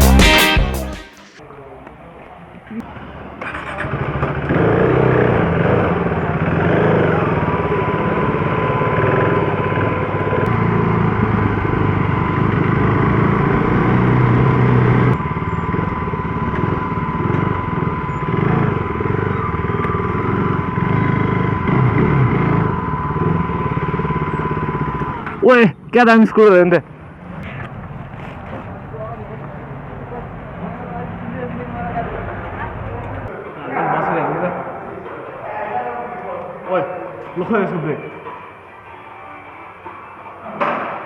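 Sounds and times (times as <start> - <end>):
motorcycle engine running: 2.9 - 26.0.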